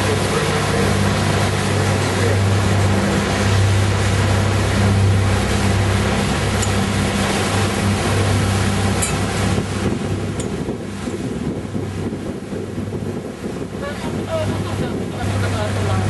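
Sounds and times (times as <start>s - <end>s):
engine humming: 0.0s - 16.0s
passing water: 0.0s - 16.0s
wind rushing: 5.0s - 15.4s.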